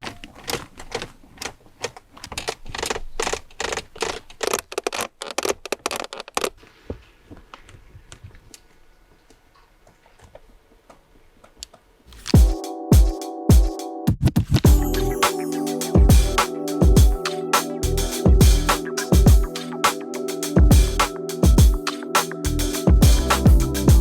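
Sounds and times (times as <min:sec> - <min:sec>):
plastic trim creaking and clicking: 0:00.0 - 0:06.6.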